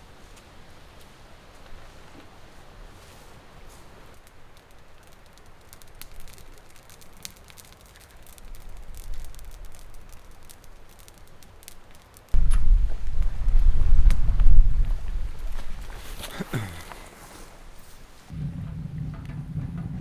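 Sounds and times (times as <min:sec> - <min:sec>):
wood fire crackling: 0:00.0 - 0:20.0
wind buffeting microphone: 0:12.4 - 0:20.0.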